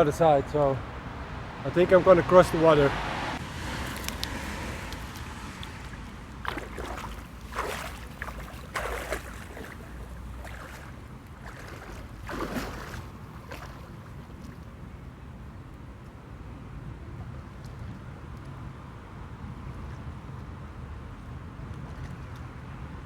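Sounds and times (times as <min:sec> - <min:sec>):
rushing water: 0:00.0 - 0:15.7
water splashing: 0:02.6 - 0:14.9.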